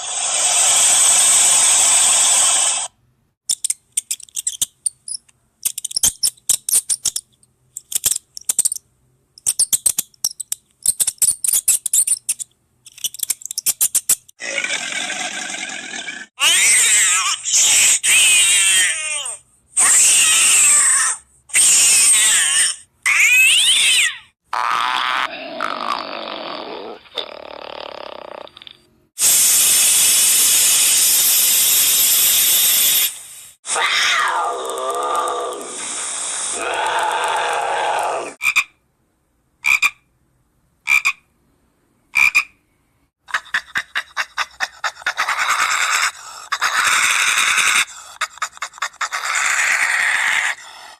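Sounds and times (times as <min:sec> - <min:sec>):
animal screeching calls: 0:16.4 - 0:19.2, 0:19.8 - 0:26.1, 0:33.7 - 0:35.8, 0:36.5 - 0:38.4, 0:43.7 - 0:48.2, 0:48.8 - 0:50.9.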